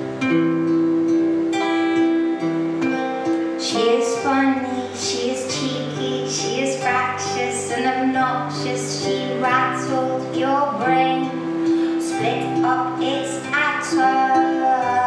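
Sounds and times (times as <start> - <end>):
guitar accompaniment: 0.0 - 15.0
woman singing: 3.5 - 15.0.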